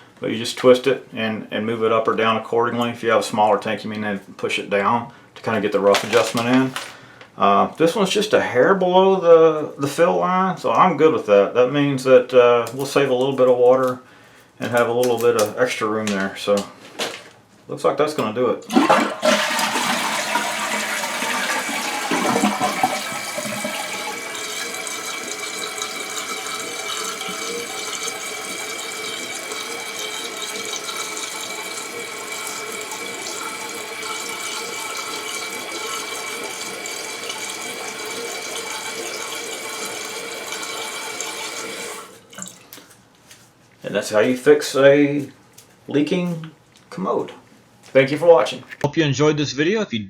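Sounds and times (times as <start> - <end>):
toilet flushing: 5.8 - 7.0, 18.6 - 42.7
tank refilling with hiss: 18.7 - 42.2.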